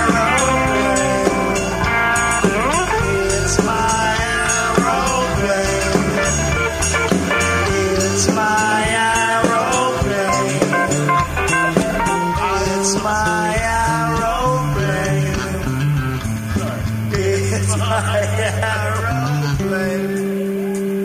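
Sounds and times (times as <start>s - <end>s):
live rock band instrumental: 0.0s - 21.0s.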